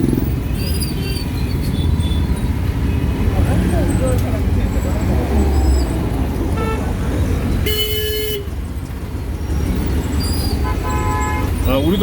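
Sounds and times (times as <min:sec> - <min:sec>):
traffic engine rumble: 0:00.0 - 0:12.0
vehicle horns honking: 0:06.5 - 0:07.0, 0:07.6 - 0:08.6, 0:10.4 - 0:12.0.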